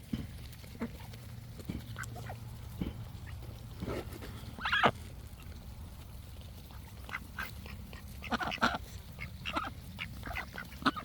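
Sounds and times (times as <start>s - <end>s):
ducks quacking: 4.5s - 5.0s, 6.6s - 11.0s.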